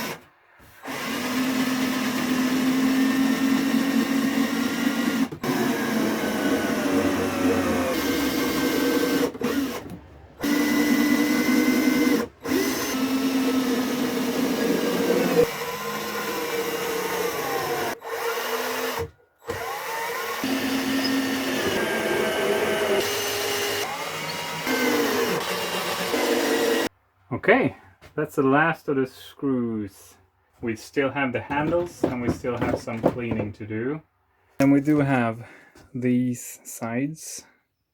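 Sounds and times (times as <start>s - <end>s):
power drill driving screws: 0.0s - 26.9s.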